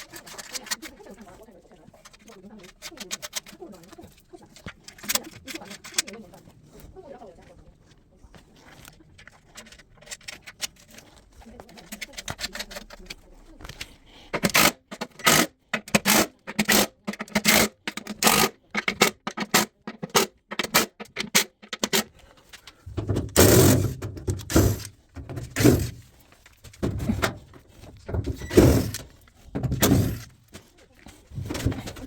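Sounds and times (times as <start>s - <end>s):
sharp scraping: 22.8s - 32.0s.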